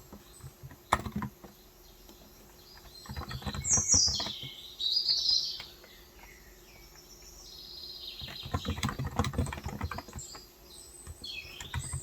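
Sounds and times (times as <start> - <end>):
birds chirping: 0.0 - 12.0
keyboard keystrokes: 0.6 - 1.5, 2.8 - 4.5, 8.2 - 10.4, 11.1 - 12.0.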